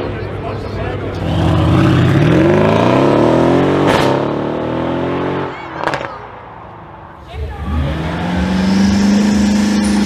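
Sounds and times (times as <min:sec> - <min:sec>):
car engine revving: 0:01.1 - 0:06.1, 0:07.6 - 0:10.0.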